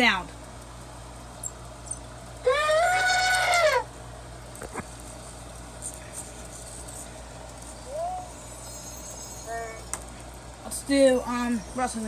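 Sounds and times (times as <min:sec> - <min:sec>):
robot elephant trumpet call: 0:02.4 - 0:03.9.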